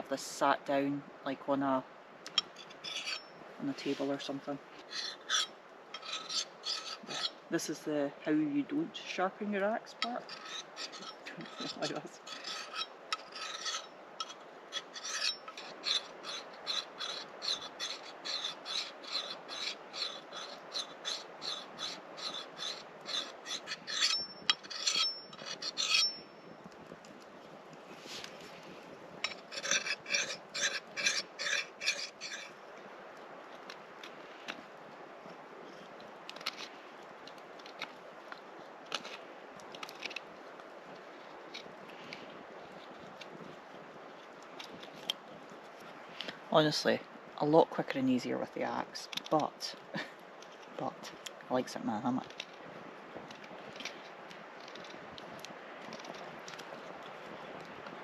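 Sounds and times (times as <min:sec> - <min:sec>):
knife whittling wood: 0:02.3 - 0:04.2, 0:04.8 - 0:07.4, 0:10.0 - 0:26.8, 0:29.2 - 0:32.6
rasping strokes on axe blade: 0:02.3 - 0:07.4, 0:09.9 - 0:26.3, 0:29.2 - 0:32.6
metallic ring from blade: 0:02.6 - 0:03.4, 0:15.0 - 0:16.0, 0:23.1 - 0:26.4.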